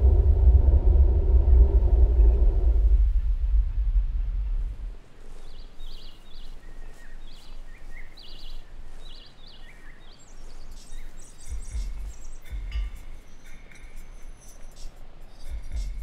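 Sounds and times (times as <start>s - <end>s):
low rumble: 0.0s - 5.8s
small bird chirping: 5.2s - 16.0s.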